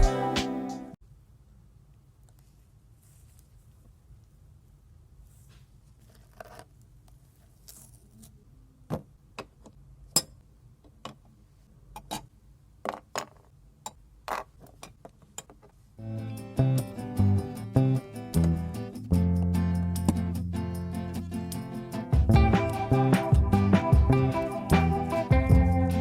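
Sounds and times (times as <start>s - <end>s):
soft scrapes: 2.4s - 3.9s, 5.2s - 8.4s.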